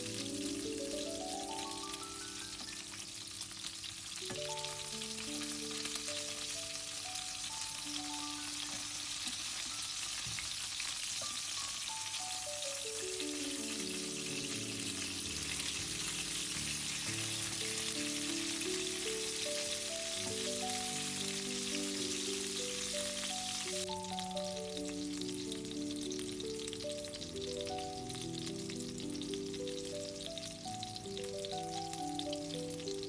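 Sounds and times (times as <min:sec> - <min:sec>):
background music with held notes: 0:00.0 - 0:33.0
cutlets sizzling in a pan: 0:00.0 - 0:33.0.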